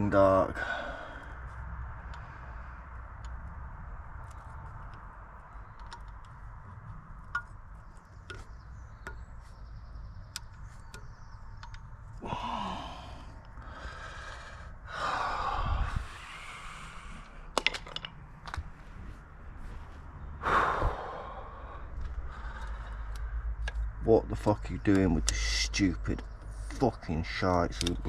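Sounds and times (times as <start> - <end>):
steady low hum: 0.0 - 28.0
hand tools clicking and tapping: 4.2 - 9.5, 27.5 - 28.0.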